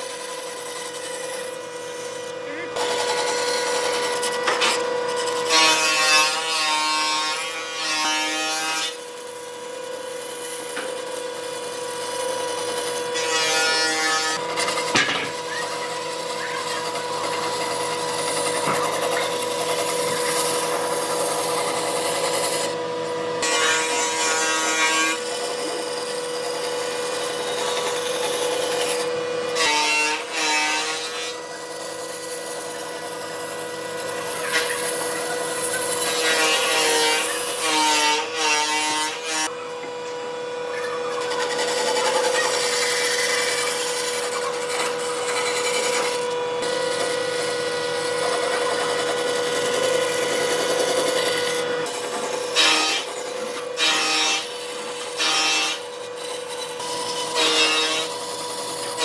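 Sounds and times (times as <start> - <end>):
rough rasping on wood: 0.0 - 22.8, 41.2 - 59.0
power tool humming: 0.0 - 59.0.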